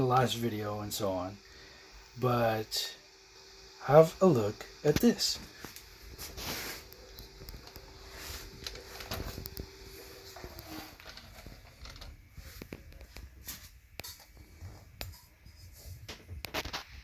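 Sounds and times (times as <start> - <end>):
faint steady hum: 0.0 - 17.0
small clicks and rustles: 5.6 - 17.0.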